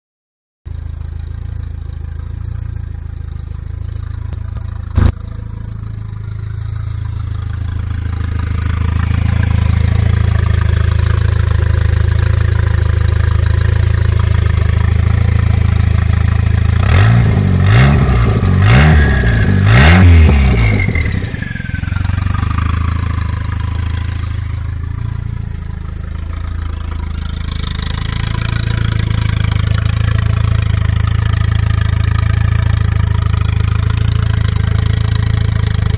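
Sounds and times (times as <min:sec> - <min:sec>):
car engine idling and revving: 0:00.7 - 0:35.9.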